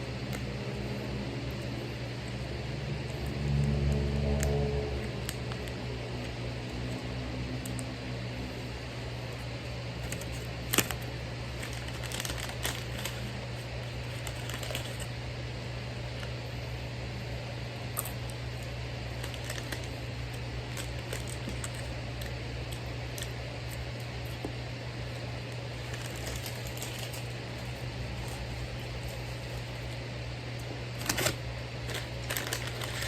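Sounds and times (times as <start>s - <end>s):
steady low hum: 0.0s - 33.0s
food packaging clicks and crinkles: 10.0s - 15.1s, 18.0s - 24.6s, 25.2s - 30.0s, 30.6s - 33.0s.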